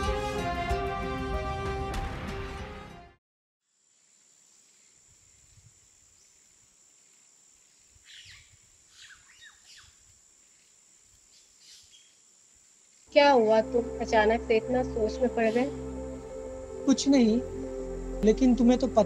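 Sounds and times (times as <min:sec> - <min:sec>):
high-pitched whine: 0:13.3 - 0:19.0.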